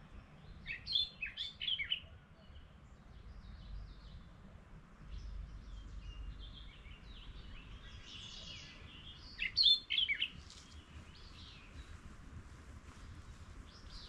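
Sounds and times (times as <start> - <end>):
wild birds singing and chirping: 0.0 - 12.1, 12.9 - 14.0.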